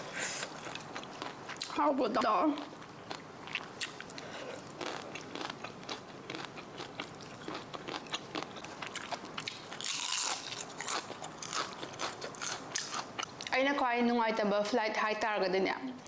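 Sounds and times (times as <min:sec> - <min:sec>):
person chewing crunchy food: 0:00.0 - 0:01.8, 0:02.5 - 0:13.5.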